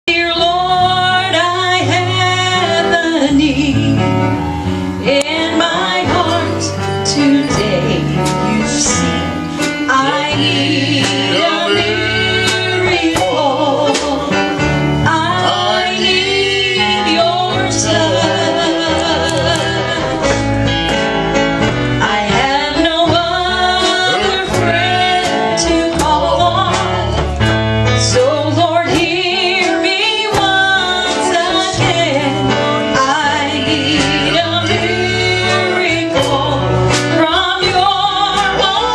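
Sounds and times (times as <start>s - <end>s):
voices singing gospel song: 0.1s - 4.4s, 5.0s - 38.9s
bass line: 0.1s - 38.9s.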